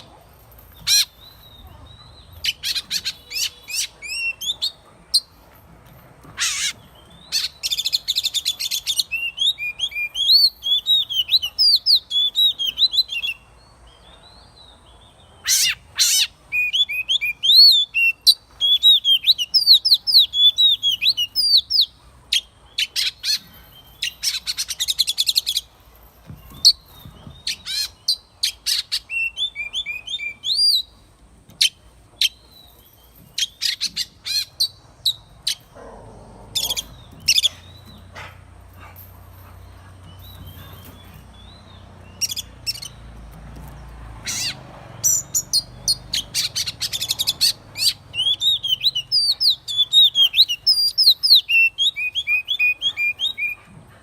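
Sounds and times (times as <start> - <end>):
bird singing whistled notes: 26.5 - 30.9, 45.0 - 53.6.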